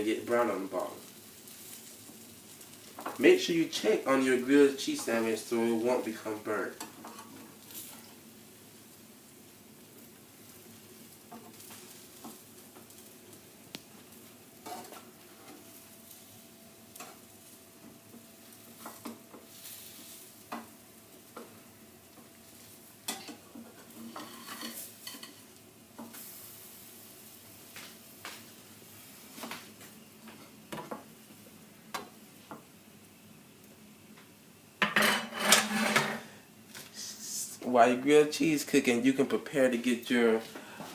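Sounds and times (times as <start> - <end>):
sandwich sizzling in a frying pan: 0.0 - 40.9
spatula tapping and scraping pan: 18.8 - 19.4, 30.3 - 31.1.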